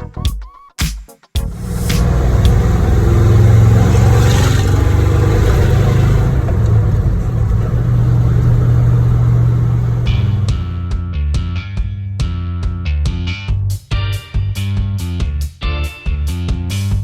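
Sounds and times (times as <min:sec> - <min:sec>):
vehicle engine running: 0:01.4 - 0:10.9.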